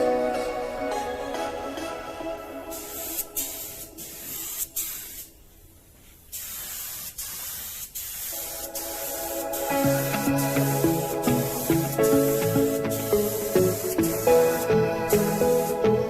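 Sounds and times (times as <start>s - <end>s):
background music: 0.0s - 4.6s, 8.4s - 16.0s
paint spray gun hissing: 2.7s - 5.4s, 6.2s - 16.0s.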